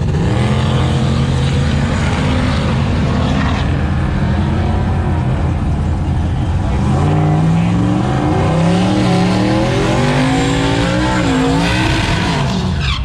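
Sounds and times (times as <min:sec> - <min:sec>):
truck engine at high revs: 0:00.0 - 0:13.0.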